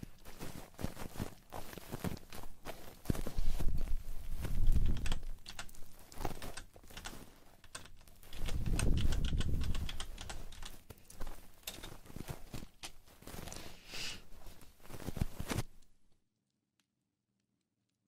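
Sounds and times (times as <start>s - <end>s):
rubbing on microphone: 3.1s - 5.0s
crisp clicks and taps: 4.4s - 13.4s.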